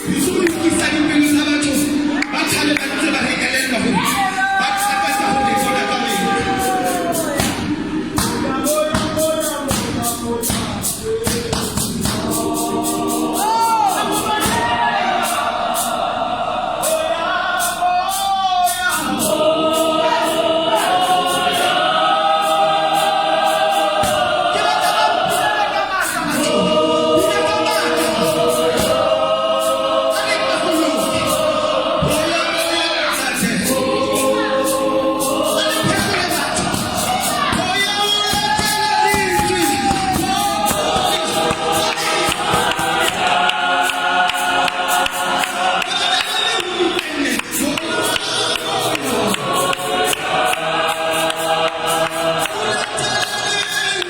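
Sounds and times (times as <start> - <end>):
gospel choir singing in harmony: 0.0 - 54.0
sharp percussive hits: 4.8 - 16.1, 22.4 - 32.8, 33.7 - 54.0.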